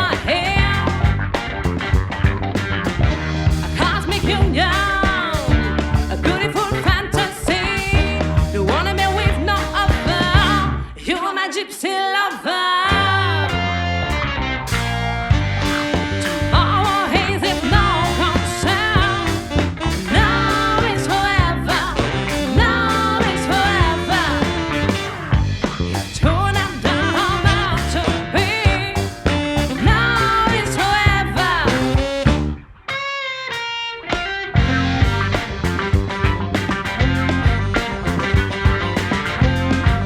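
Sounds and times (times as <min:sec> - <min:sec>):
live band playing a groove: 0:00.0 - 0:10.9, 0:12.9 - 0:40.0
lead line soloing: 0:12.9 - 0:33.1, 0:34.6 - 0:40.0.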